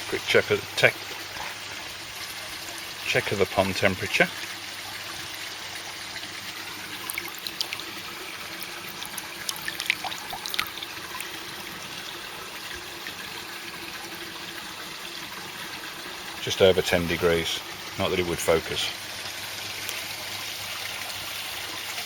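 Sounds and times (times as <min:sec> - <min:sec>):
water trickling into pond: 0:00.0 - 0:22.0
droplet splashes: 0:07.0 - 0:11.4.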